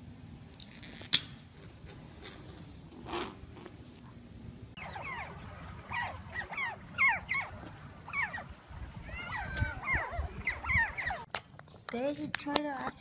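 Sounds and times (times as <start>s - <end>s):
otters chirping: 4.8s - 8.5s, 9.1s - 11.3s.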